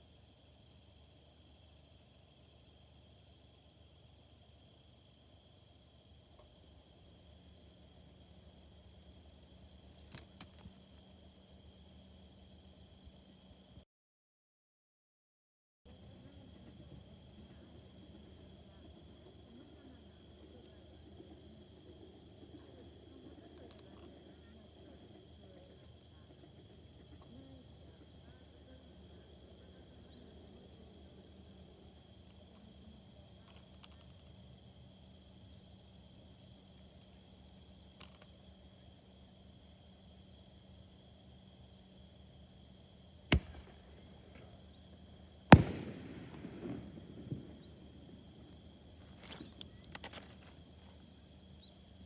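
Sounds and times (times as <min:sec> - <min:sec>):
distant crowd murmur: 0:15.9 - 0:31.8, 0:43.3 - 0:44.7, 0:45.5 - 0:50.5
insects trilling: 0:15.9 - 0:52.0
fireworks booming: 0:43.3 - 0:44.7, 0:45.4 - 0:50.3
faint firework pops: 0:43.3 - 0:44.8, 0:45.5 - 0:50.6.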